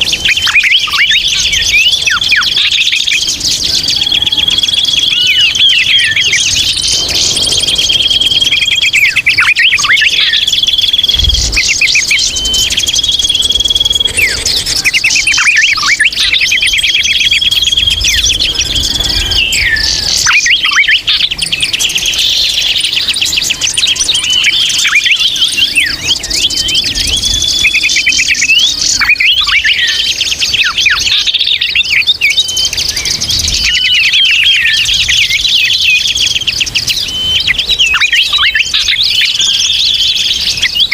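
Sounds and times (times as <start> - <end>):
high held whistle: 0.0 - 21.2
small birds twittering: 0.0 - 40.9.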